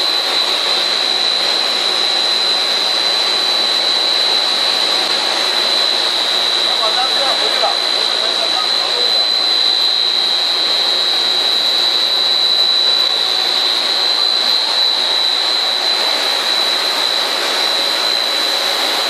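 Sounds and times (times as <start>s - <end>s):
high-pitched machine whine: 0.0s - 19.0s
machine running: 4.1s - 19.0s.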